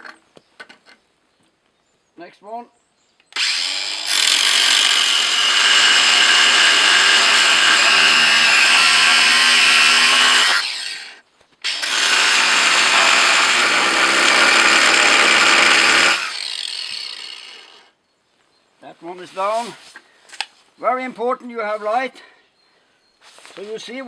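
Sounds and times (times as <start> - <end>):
angle grinder cutting metal: 3.4 - 17.8.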